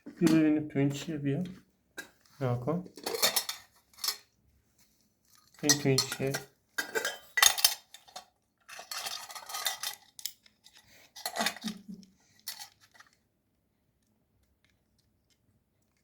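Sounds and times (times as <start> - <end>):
dishes and utensils clattering: 0.0 - 1.0, 2.9 - 4.3, 5.5 - 13.1.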